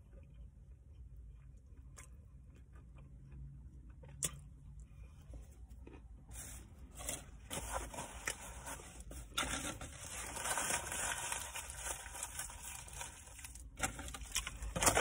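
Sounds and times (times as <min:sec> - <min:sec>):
person chewing: 0:00.0 - 0:07.4
rubbing and rustling handling noise: 0:05.2 - 0:15.0.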